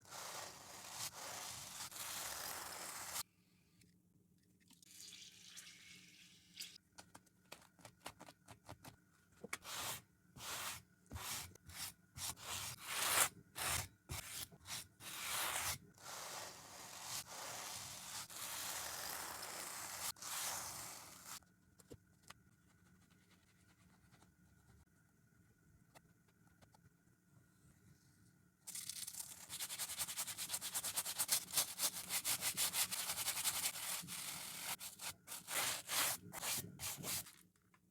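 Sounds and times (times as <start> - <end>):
brush scrubbing a shoe: 29.5 - 37.4.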